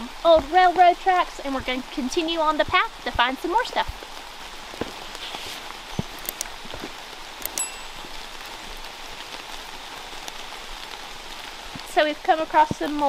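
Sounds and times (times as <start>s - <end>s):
steady rain on forest: 0.0s - 13.0s
sharp drops and clicks: 7.4s - 8.7s
brief high ring: 7.6s - 8.6s.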